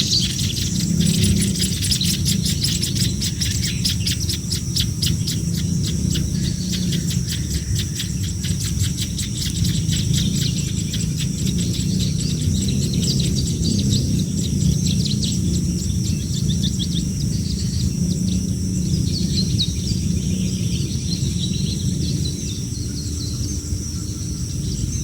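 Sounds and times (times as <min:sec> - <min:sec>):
nestling birds begging chirps: 0:00.0 - 0:25.0.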